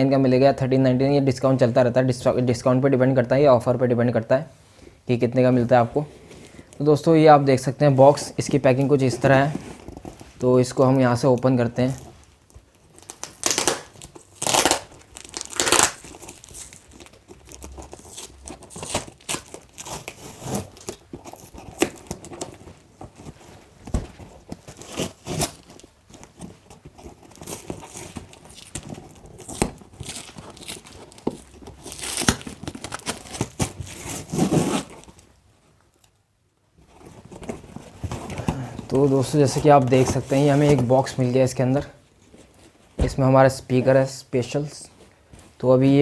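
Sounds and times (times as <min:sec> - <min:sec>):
packaging ripping and crinkling: 0:11.2 - 0:35.3.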